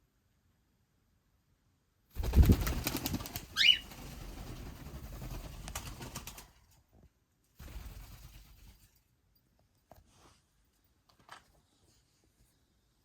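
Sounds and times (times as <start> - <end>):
bird wings flapping: 2.2 - 6.6, 7.6 - 8.9.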